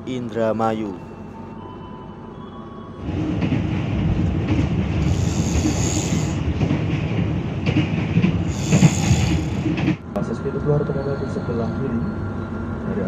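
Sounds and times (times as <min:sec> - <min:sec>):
rumble of wheels on rails: 0:03.0 - 0:13.0
bright hiss: 0:05.0 - 0:06.4, 0:08.5 - 0:09.6.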